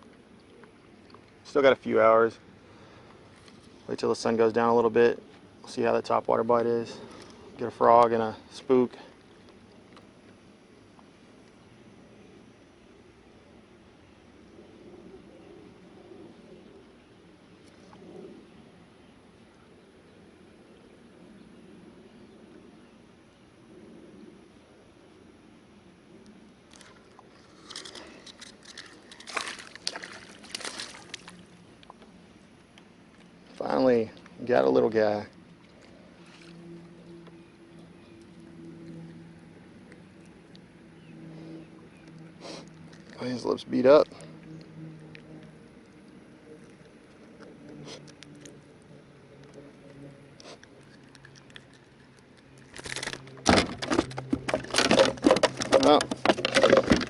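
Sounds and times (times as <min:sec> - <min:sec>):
faint low hum: 0:00.0 - 0:57.0
water splashing beside kayak: 0:26.7 - 0:31.8
clicks and clatter: 0:52.6 - 0:57.0.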